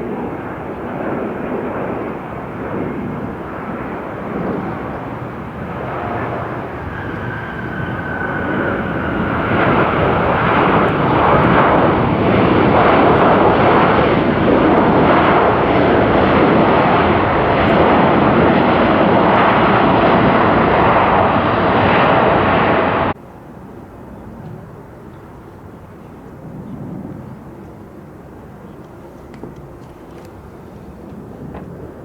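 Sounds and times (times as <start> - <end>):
jet airliner passing close: 0.0 - 23.2.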